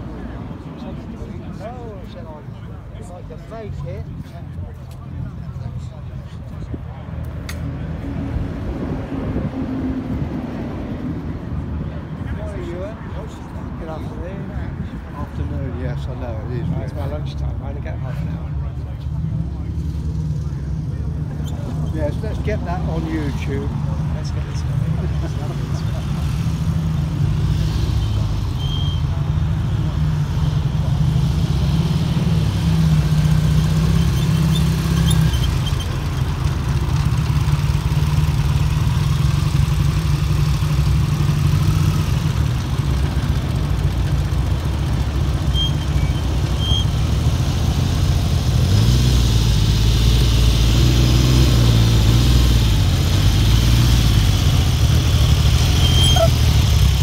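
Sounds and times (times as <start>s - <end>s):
motorcycle engine idling: 33.5s - 48.6s.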